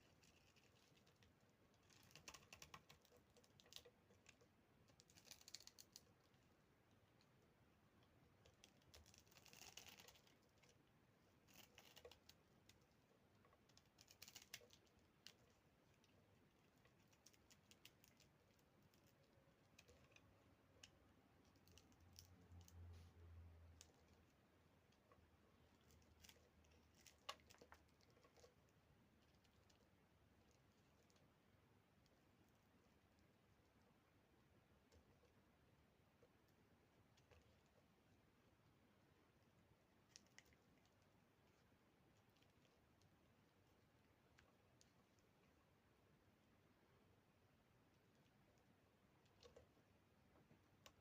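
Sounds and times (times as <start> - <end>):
crisp crackling of crumbling soap: 0.0 - 7.4, 8.0 - 22.9, 23.6 - 31.4.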